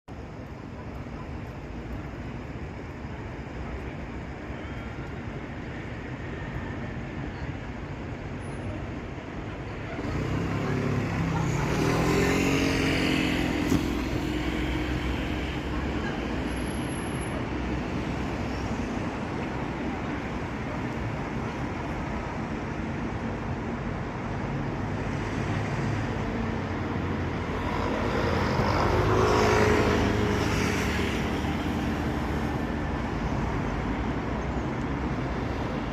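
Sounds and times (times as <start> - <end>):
passing road traffic: 0.1 - 35.9
vehicle engine passing by: 10.0 - 15.7.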